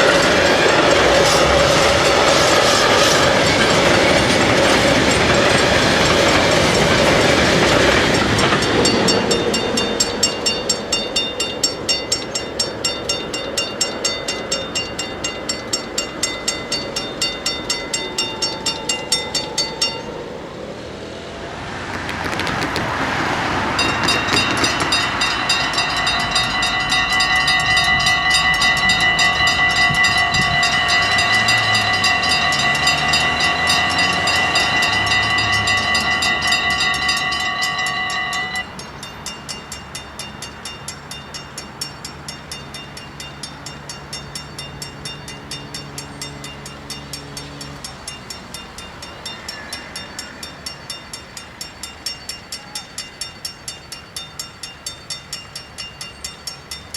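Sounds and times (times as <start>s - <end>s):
level crossing bells ringing: 0.0s - 20.4s, 23.7s - 56.9s
train rushing past: 0.0s - 56.9s.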